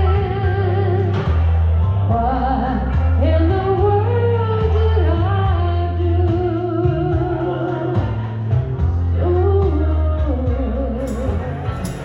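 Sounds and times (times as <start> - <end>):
steady bass line: 0.0 - 12.0
cymbal strikes: 11.0 - 12.0
wavering held melody: 11.0 - 12.0.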